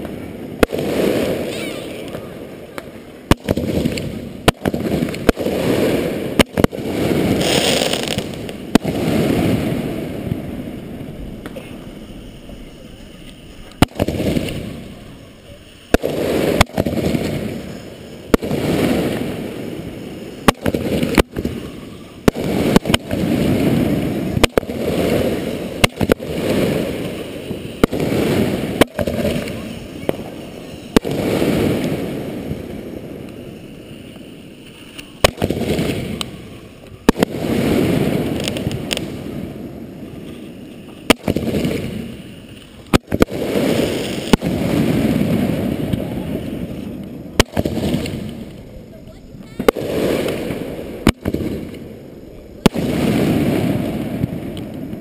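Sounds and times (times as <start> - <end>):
rumbling firework booms: 0.0 - 34.4, 35.1 - 55.0
firework shells cracking: 0.0 - 55.0.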